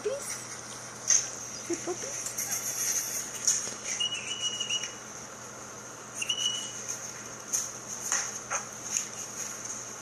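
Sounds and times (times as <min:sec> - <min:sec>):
dog whining: 0:03.9 - 0:05.0.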